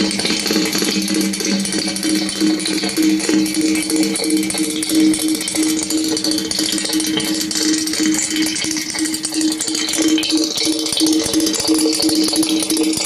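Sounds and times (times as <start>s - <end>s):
pulsing hum: 0.0s - 12.8s
crackling rattling hiss: 0.0s - 12.9s.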